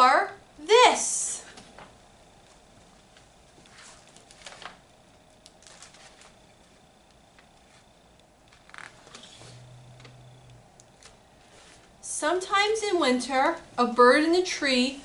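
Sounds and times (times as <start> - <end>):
book pages turning: 3.6 - 4.8, 5.5 - 6.4, 7.3 - 9.6.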